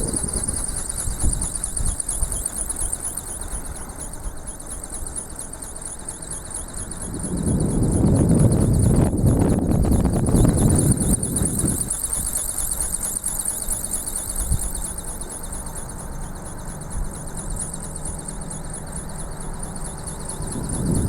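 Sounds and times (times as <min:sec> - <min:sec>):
wind buffeting microphone: 0:00.0 - 0:03.2, 0:06.8 - 0:13.1, 0:20.1 - 0:21.0
high-pitched pulsing shrill: 0:00.0 - 0:21.0.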